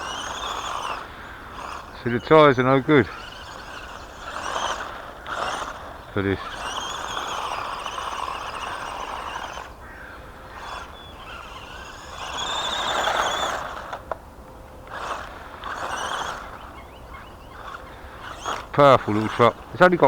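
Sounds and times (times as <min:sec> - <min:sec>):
electric motor whining: 0:00.0 - 0:20.0
tyres scrabbling on gravel: 0:00.0 - 0:20.0.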